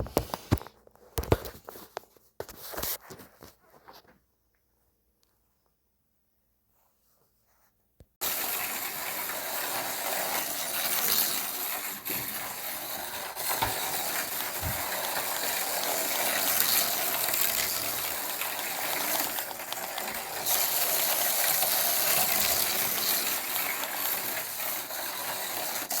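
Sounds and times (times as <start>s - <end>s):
slot car motors whirring: 8.2s - 26.0s.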